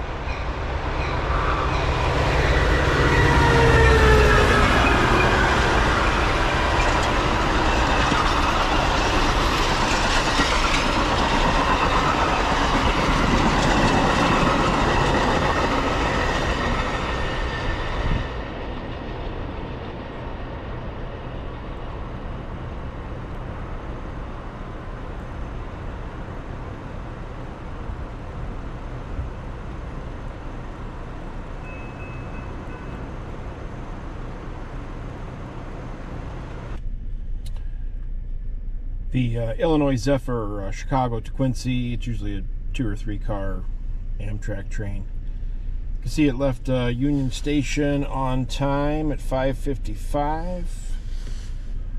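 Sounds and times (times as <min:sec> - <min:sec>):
train passing on rails: 0:00.0 - 0:40.0, 0:40.9 - 0:51.9
low rumble: 0:00.0 - 0:51.9
ringing tones: 0:31.6 - 0:33.3.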